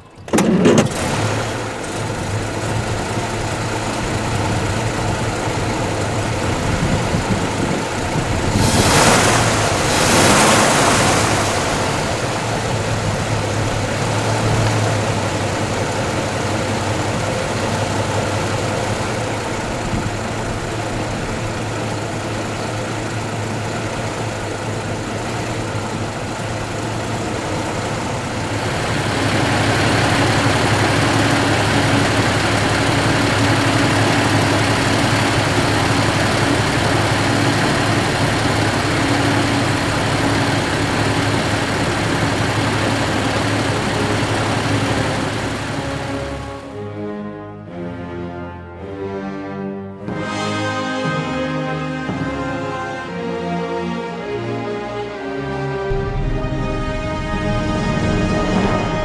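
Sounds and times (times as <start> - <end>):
car engine idling: 0.0 - 46.7
rush of noise: 5.0 - 16.4, 55.9 - 59.0.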